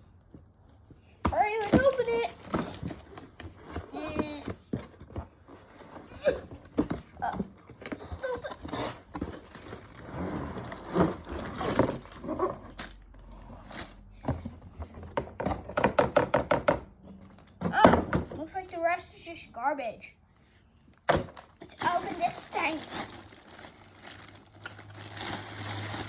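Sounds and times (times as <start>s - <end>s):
cardboard box being opened: 1.6s - 14.0s.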